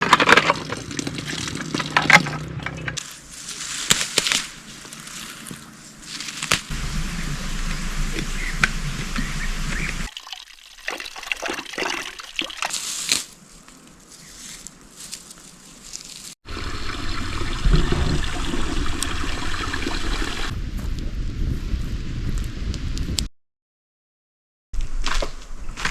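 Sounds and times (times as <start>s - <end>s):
water trickling and pouring: 6.8s - 13.0s, 16.4s - 20.5s.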